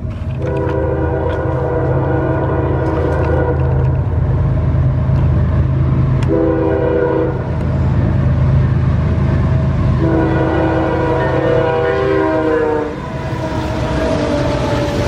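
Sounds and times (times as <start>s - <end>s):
diesel locomotive engine drone: 0.0s - 15.0s
locomotive air horn blasts: 0.4s - 4.1s, 6.2s - 7.6s, 9.9s - 15.0s.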